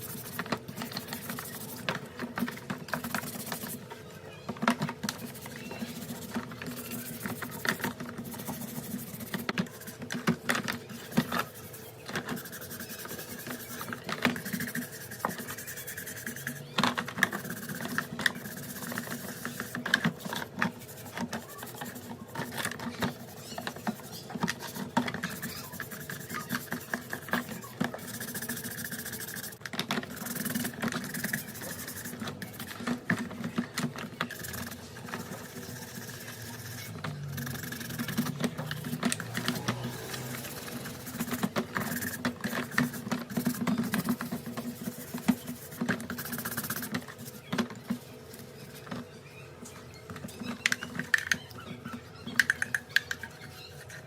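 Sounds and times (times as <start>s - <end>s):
tools and parts clicking and scraping: 4.5s - 54.0s.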